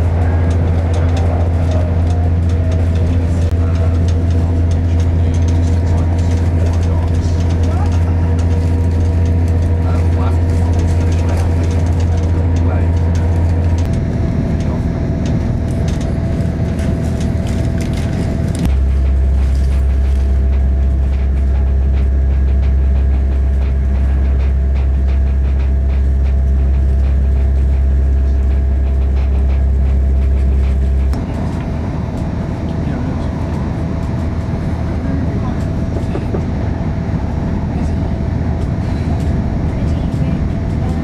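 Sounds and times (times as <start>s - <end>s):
train interior drone: 0.0s - 41.0s.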